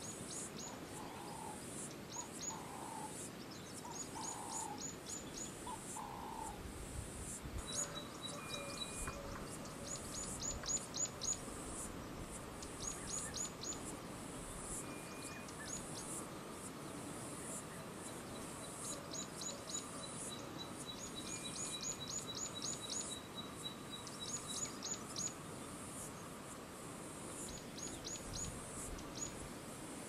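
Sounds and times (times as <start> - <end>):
steady high hiss: 0.0 - 30.0.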